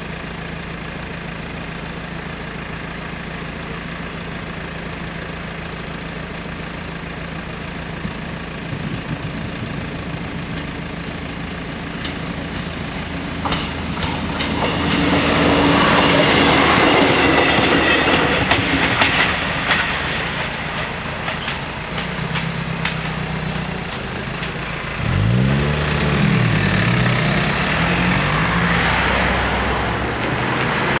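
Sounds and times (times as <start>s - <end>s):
train wheels clicking over rail joints: 7.9s - 31.0s
car engine accelerating: 8.0s - 31.0s.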